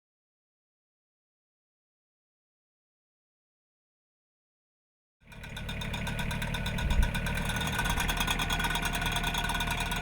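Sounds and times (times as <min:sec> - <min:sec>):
tractor engine running: 0:05.2 - 0:10.0
rapid even ticking: 0:05.4 - 0:10.0.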